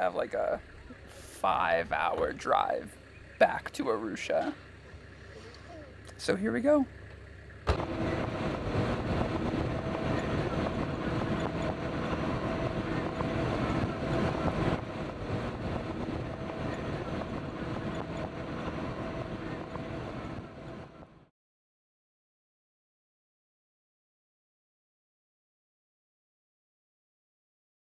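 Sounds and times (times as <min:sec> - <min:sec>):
vehicle engine and road noise: 0:00.0 - 0:21.3.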